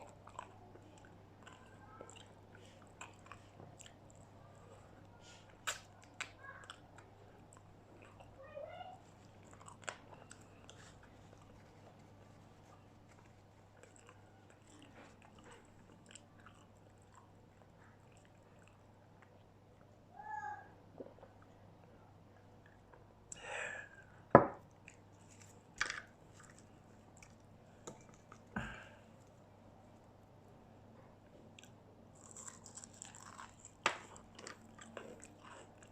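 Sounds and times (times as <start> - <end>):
chewing crispy fried food: 0.0 - 8.4, 9.0 - 19.9, 31.4 - 35.9
crunchy bites and chewing: 31.6 - 35.9.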